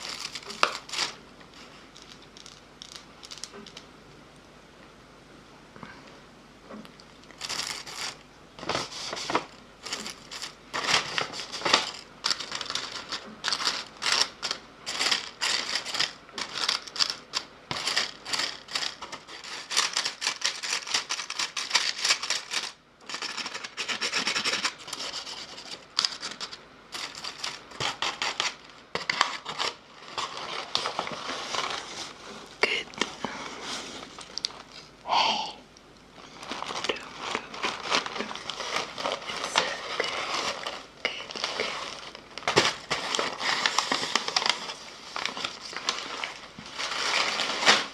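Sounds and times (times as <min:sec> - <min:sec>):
rubbing and scratching: 0:07.4 - 0:34.4.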